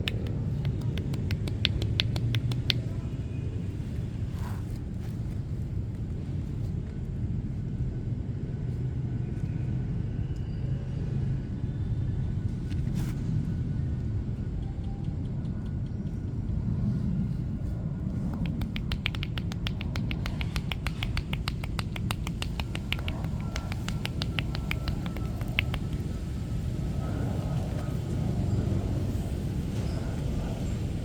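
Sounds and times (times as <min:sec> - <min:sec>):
hands slapping in percussive massage: 0:00.0 - 0:03.0, 0:18.2 - 0:26.4
low rumble of street traffic: 0:00.0 - 0:31.0.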